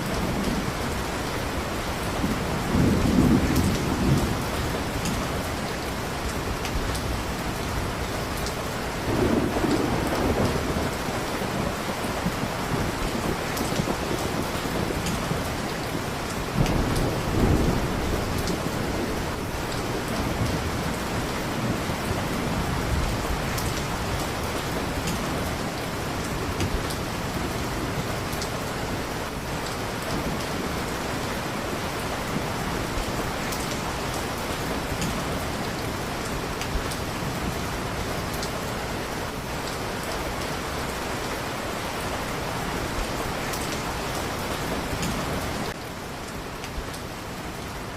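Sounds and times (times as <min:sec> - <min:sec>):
low rumble of thunder: 0:00.0 - 0:08.3, 0:08.9 - 0:39.0
heavy rain: 0:00.0 - 0:47.9.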